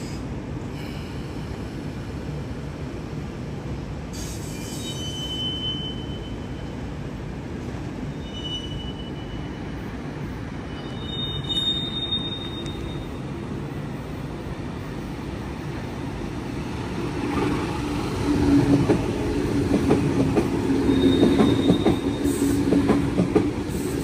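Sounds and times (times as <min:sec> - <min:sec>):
train rumbling on tracks: 0:00.0 - 0:24.0
train wheels squealing: 0:04.1 - 0:06.8, 0:08.1 - 0:10.0, 0:10.6 - 0:13.3, 0:20.6 - 0:22.8.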